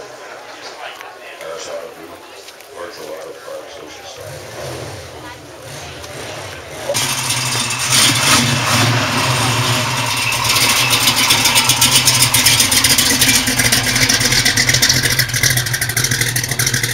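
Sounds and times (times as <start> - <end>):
hot rod engine running: 4.0 - 16.9.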